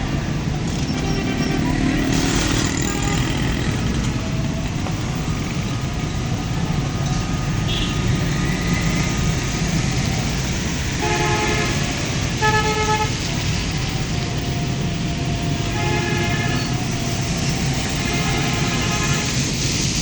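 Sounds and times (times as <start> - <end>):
road traffic and engines: 0.0 - 20.0
vehicle horns honking: 0.7 - 3.9, 7.6 - 8.4, 10.9 - 13.6, 15.6 - 19.6.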